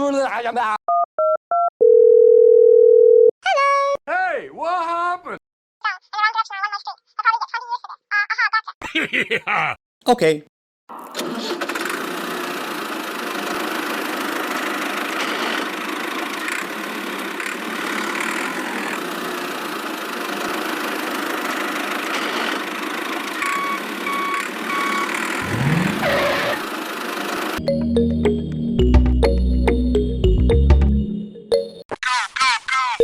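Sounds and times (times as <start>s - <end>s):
small motor running: 11.4s - 27.6s.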